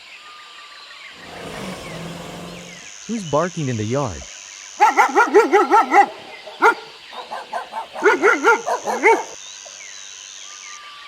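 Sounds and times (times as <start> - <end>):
dog barking: 4.8 - 9.4.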